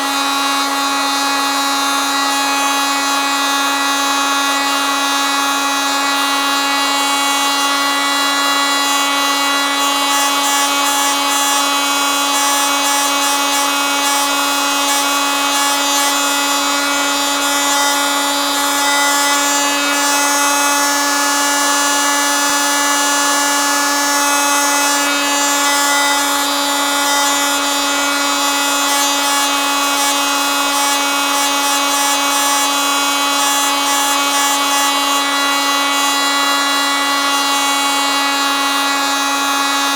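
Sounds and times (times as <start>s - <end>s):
oscillating multitool buzzing: 0.0s - 39.9s.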